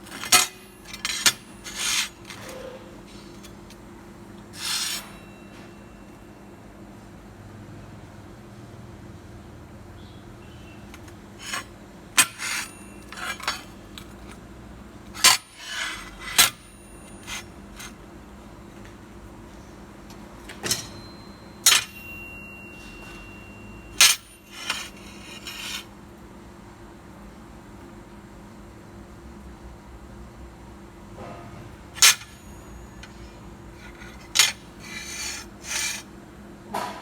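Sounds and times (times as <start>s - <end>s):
metal pieces clanking: 0.1s - 2.4s, 4.6s - 5.1s, 11.4s - 14.3s, 24.0s - 25.9s, 32.0s - 32.4s, 33.8s - 36.0s.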